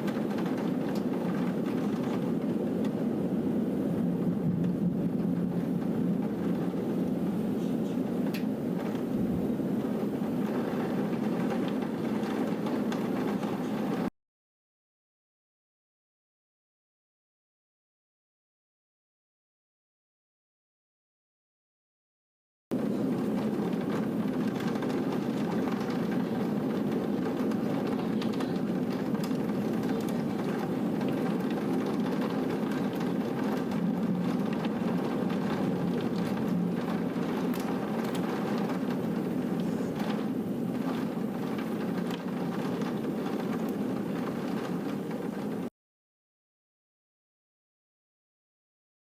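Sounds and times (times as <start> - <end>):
heavy rain: 0.0 - 14.1, 22.7 - 45.7
rain drops ticking: 0.0 - 14.1, 22.7 - 45.7.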